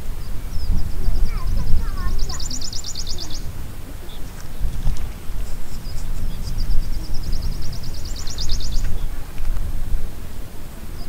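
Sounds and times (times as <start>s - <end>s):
small bird trilling song: 0.0s - 9.2s
steady low rumbling: 0.0s - 11.0s.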